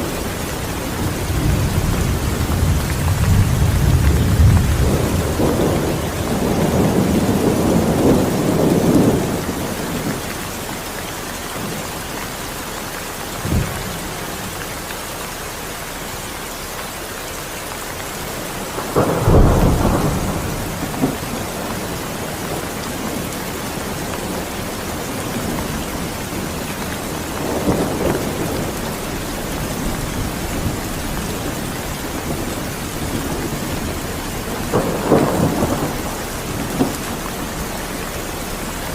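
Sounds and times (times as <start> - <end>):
thunder rumbling: 0.0 - 10.6, 18.2 - 38.9
steady rain: 0.0 - 38.9.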